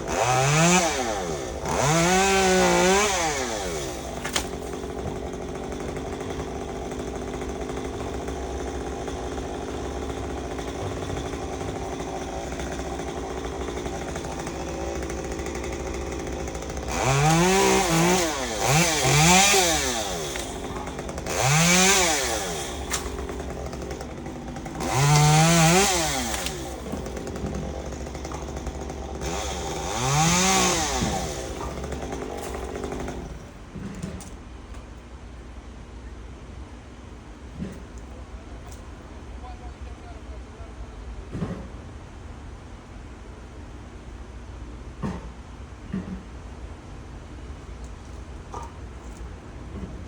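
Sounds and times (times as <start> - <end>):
chainsaw idling and revving: 0.0 - 34.2.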